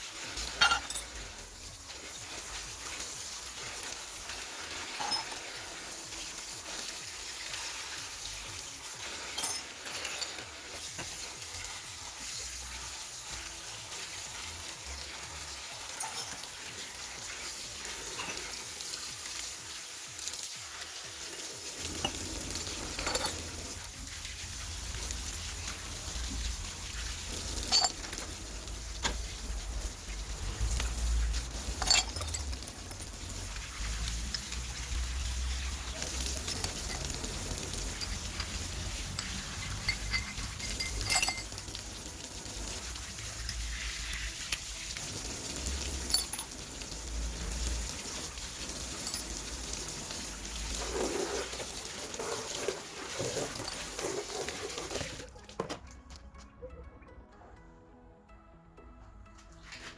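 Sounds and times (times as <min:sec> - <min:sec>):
metal tools clinking: 0:00.3 - 0:01.4, 0:04.7 - 0:05.6, 0:09.1 - 0:11.2, 0:15.8 - 0:16.7, 0:21.8 - 0:23.9, 0:24.8 - 0:29.6, 0:30.6 - 0:35.0, 0:35.7 - 0:41.8, 0:45.8 - 0:47.2, 0:48.6 - 0:49.9, 0:53.2 - 0:55.2.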